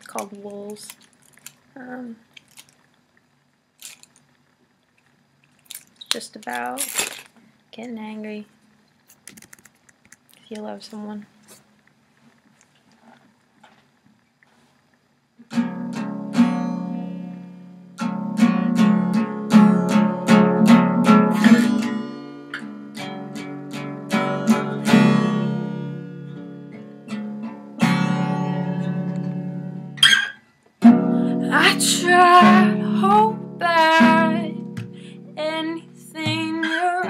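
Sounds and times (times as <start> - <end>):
acoustic guitar strummed chords: 15.4 - 37.0.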